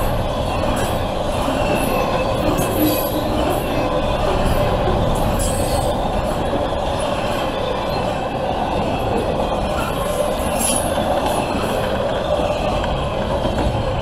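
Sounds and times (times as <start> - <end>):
steel wheels rumbling on rail: 0.0 - 14.0.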